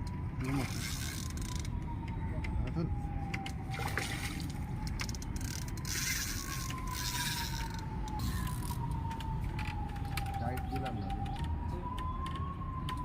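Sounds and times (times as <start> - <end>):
fishing reel clicking and scraping: 0.6 - 1.7, 4.8 - 8.8.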